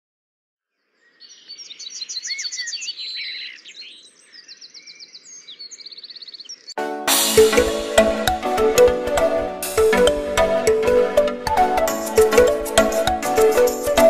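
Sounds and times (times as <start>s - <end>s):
birdsong chirps and whistles: 0.8s - 6.8s.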